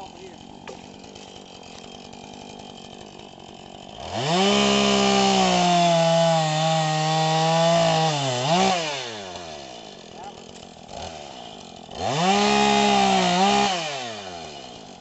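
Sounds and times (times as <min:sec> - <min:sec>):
chainsaw revving and cutting: 0:00.0 - 0:15.0.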